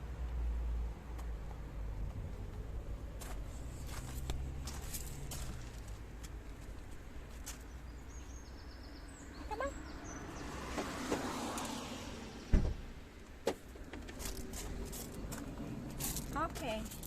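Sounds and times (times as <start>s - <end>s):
low rumble of passing vehicle: 0.0s - 17.0s
sharp low thump: 12.5s - 12.9s.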